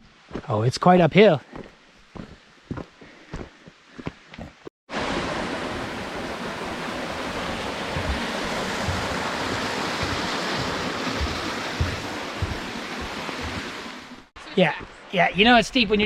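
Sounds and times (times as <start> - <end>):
stream water rushing: 4.9 - 14.3.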